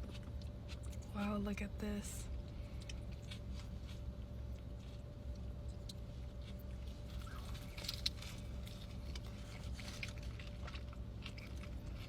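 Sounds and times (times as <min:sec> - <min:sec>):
steady low hum: 0:00.0 - 0:12.0
burger wrapper crinkling: 0:02.8 - 0:12.0.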